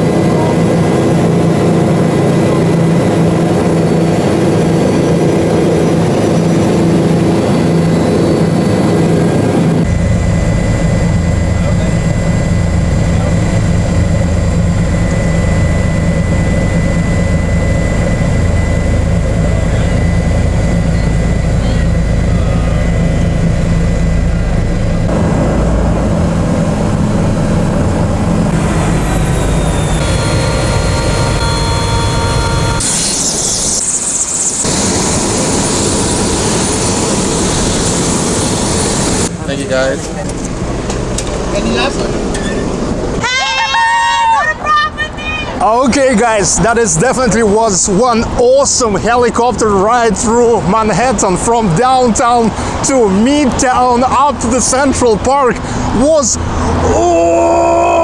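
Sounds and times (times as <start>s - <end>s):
whining tones: 0.0s - 39.4s
helicopter engine and rotor: 0.0s - 43.3s, 44.9s - 57.0s.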